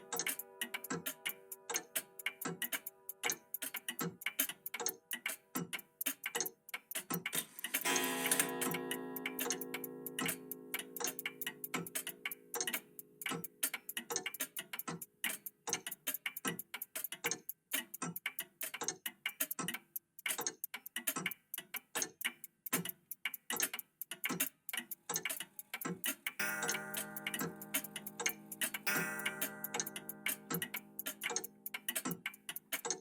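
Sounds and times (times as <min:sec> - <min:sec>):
mechanical clocks ticking: 0:00.0 - 0:33.0
clock chime ringing: 0:07.8 - 0:11.6, 0:26.4 - 0:31.0.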